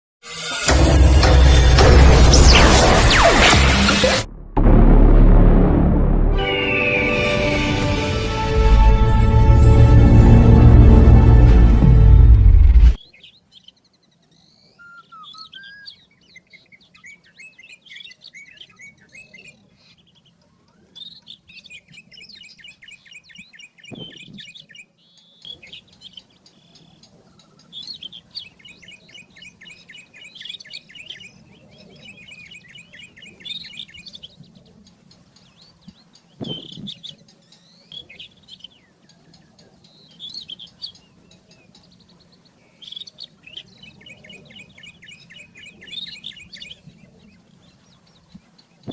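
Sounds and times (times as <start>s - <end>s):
bird singing: 13.0s - 48.9s.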